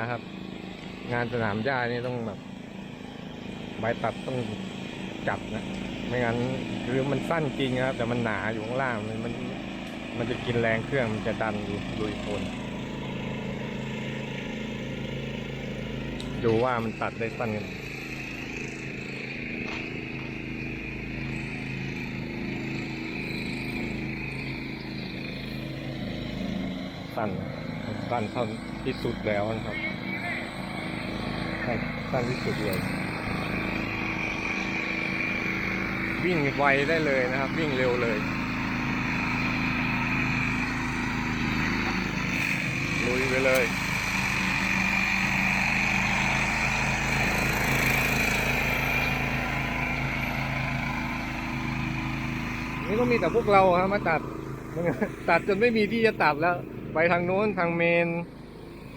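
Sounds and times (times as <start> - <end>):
ride-on lawn mower mowing: 0.0 - 58.9
high whine: 27.0 - 58.9.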